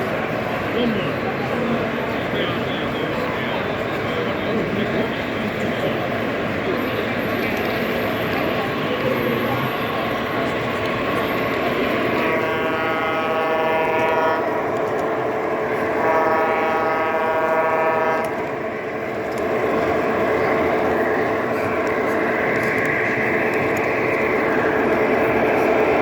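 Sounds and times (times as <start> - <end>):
model trains rumbling on track: 0.0 - 26.0
model locomotive horn blasts: 12.1 - 14.6, 15.9 - 18.5.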